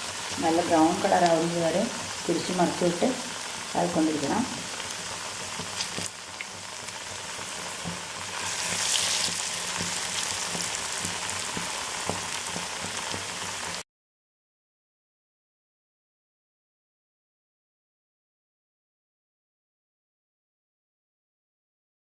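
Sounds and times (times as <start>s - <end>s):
fritters sizzling in hot oil: 0.0s - 13.8s.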